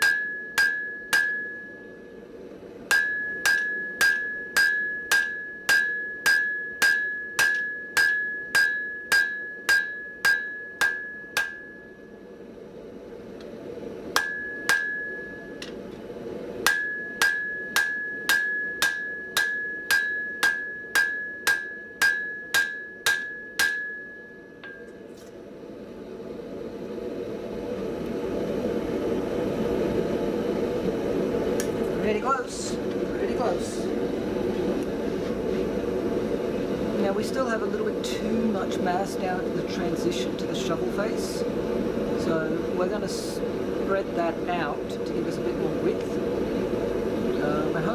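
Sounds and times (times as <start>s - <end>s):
hammer striking steel on anvil: 0.0s - 2.2s, 2.9s - 12.2s, 14.1s - 15.9s, 16.6s - 25.2s.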